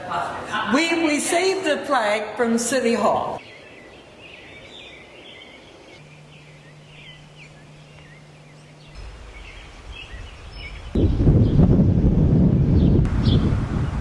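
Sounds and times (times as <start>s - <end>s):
birds chirping: 3.3s - 13.5s
wind rumble on microphone: 8.8s - 14.0s.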